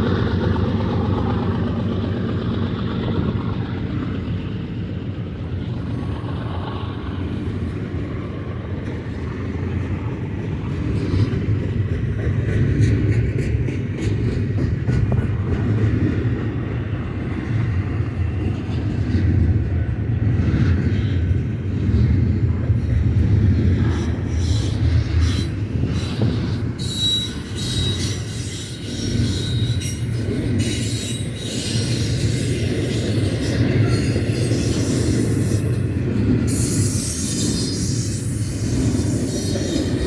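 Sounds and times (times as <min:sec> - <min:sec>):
rumble of train wheels on rail: 0:00.0 - 0:40.0
high wheel squeal: 0:24.0 - 0:40.0.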